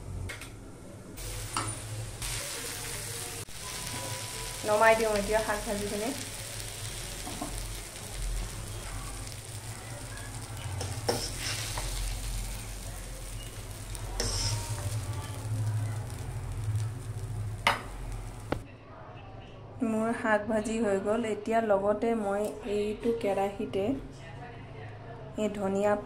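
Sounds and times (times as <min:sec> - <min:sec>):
greens sizzling in a pan: 0:01.2 - 0:18.6.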